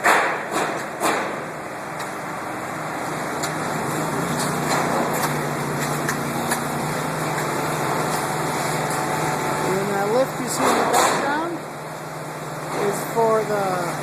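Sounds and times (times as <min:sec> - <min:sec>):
construction machinery engine running: 0:00.0 - 0:14.0.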